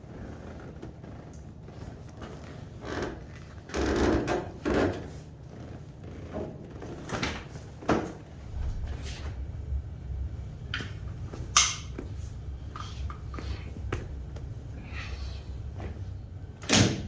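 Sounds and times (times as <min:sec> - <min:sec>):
low steady rumble: 0:07.6 - 0:17.0.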